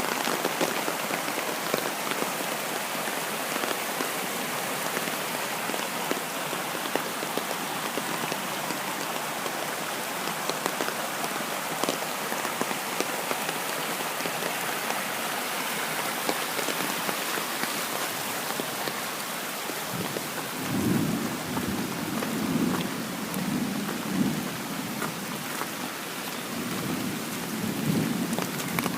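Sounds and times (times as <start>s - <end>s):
heavy rain pouring: 0.0s - 28.9s
raindrops ticking: 4.9s - 15.0s, 19.6s - 28.9s
thunder rumbling: 19.9s - 24.5s.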